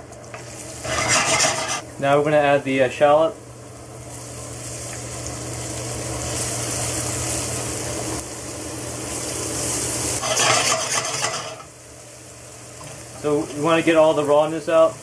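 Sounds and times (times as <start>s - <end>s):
shallot and garlic sizzling in oil: 0.0s - 15.0s
wooden spoon scraping a pan: 0.8s - 1.9s, 10.2s - 11.7s.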